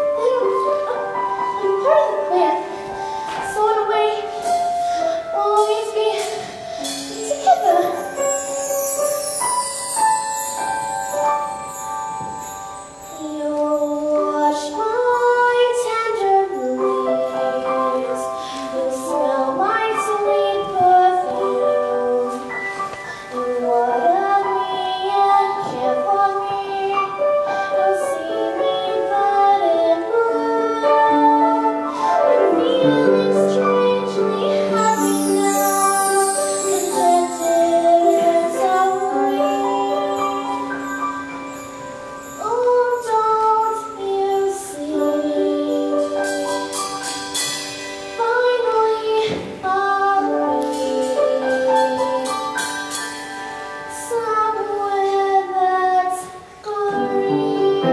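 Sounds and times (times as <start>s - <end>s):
keyboard accompaniment: 0.0s - 57.9s
woman singing a slow ballad: 13.0s - 22.8s, 23.4s - 41.0s, 42.3s - 46.8s, 48.2s - 52.5s, 53.9s - 57.9s.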